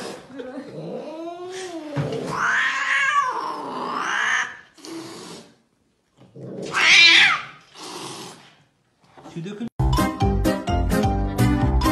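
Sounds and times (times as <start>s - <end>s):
cat yowling: 2.2s - 4.7s, 6.6s - 7.6s.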